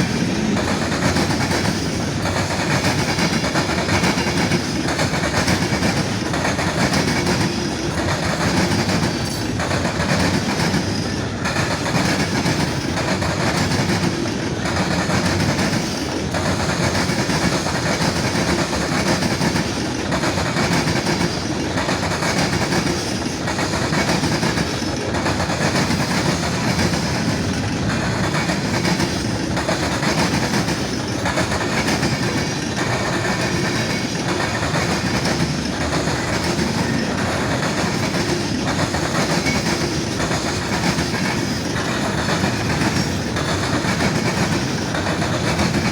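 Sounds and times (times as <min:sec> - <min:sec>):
wheels clicking over rail joints: 0:00.0 - 0:45.9.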